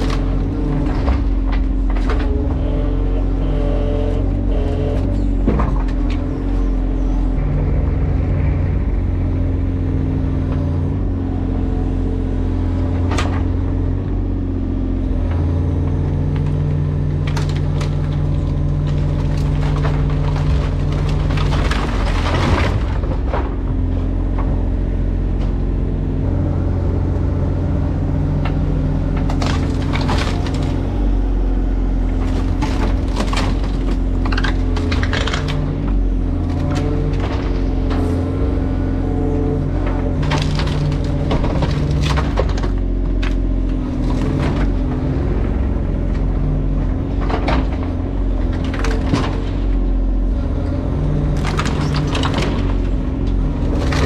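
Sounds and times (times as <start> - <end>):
material cracking and breaking: 0.0 - 2.5, 16.2 - 23.7, 29.1 - 31.0, 32.1 - 37.9, 40.1 - 44.8, 51.2 - 54.0
engine running: 0.0 - 54.0.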